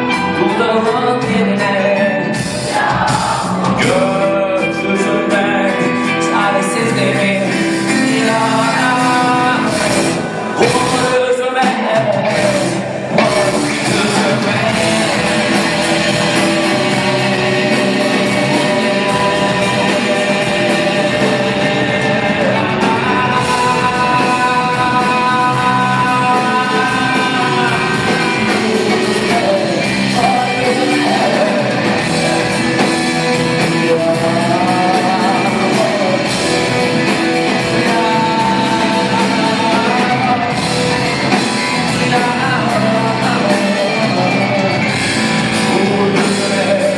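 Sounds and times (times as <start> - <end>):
live rock band music: 0.0 - 46.9
bending guitar melody notes: 12.0 - 46.9.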